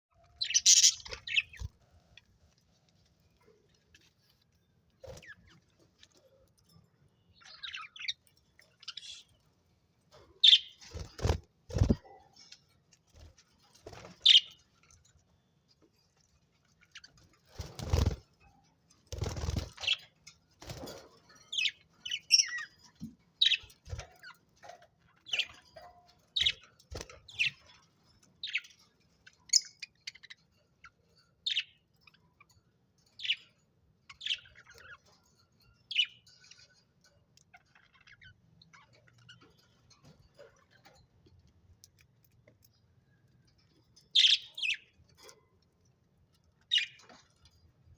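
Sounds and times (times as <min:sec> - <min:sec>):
budgerigars chirping: 0:00.4 - 0:01.6.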